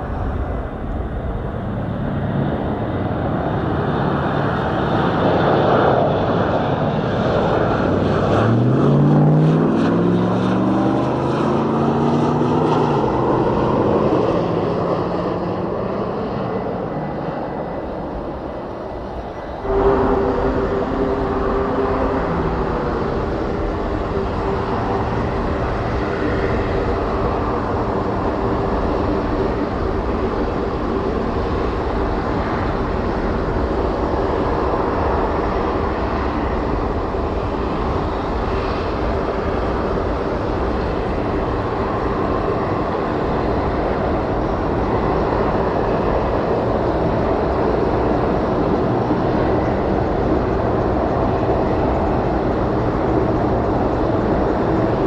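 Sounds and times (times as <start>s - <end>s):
aircraft engines rumbling: 0.0s - 55.0s
low hum tones: 16.2s - 46.4s.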